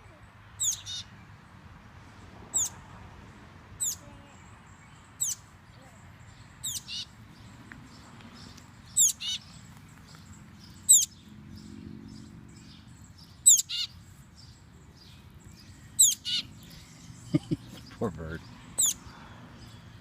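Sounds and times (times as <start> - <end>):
baby bird cheeping: 0.6 - 1.2, 2.5 - 2.8, 3.8 - 4.5, 5.2 - 7.2, 8.9 - 9.6, 10.7 - 11.2, 12.6 - 14.0, 15.6 - 17.7, 18.4 - 19.1.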